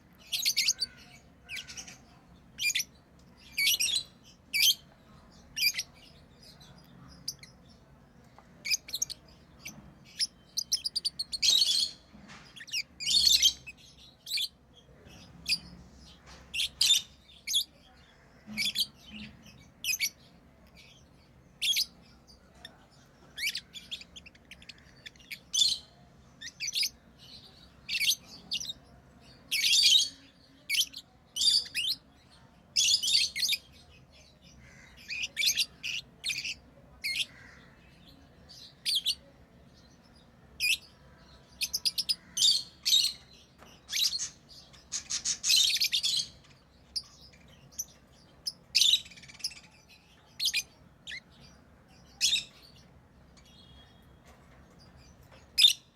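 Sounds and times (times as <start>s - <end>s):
lovebirds chirping: 0.0s - 55.9s.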